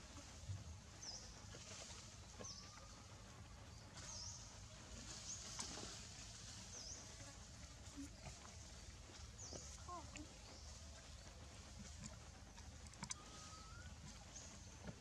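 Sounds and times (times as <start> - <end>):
faint low outdoor rumble: 0.0 - 15.0
small bird chirping: 12.8 - 15.0.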